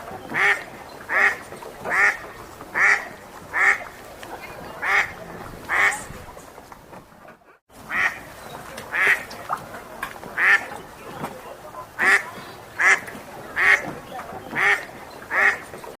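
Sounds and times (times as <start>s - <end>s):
duck quacking: 0.2s - 4.0s, 4.8s - 6.1s, 7.9s - 8.3s, 8.9s - 9.3s, 10.4s - 10.7s, 11.8s - 15.7s.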